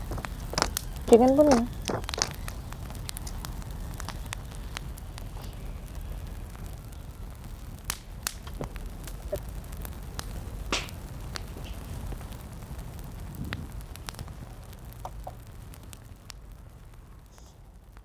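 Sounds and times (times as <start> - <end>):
crackles and sharp pops: 0.0 - 18.0
wind rumble on microphone: 0.0 - 18.0.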